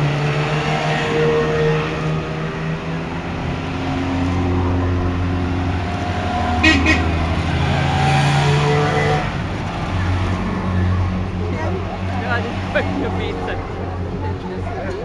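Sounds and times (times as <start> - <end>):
small two-stroke engines passing: 0.0 - 15.0
horn toot: 6.6 - 7.3.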